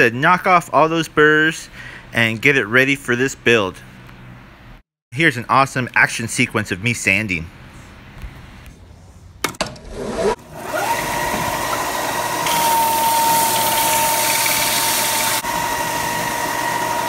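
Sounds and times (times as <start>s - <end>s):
sander motor whine: 10.4s - 17.0s.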